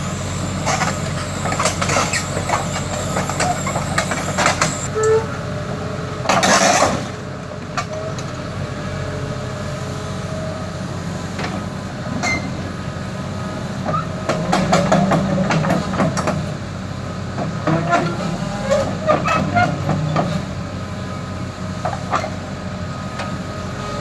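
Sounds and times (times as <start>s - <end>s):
excavator diesel engine running: 0.0s - 4.9s.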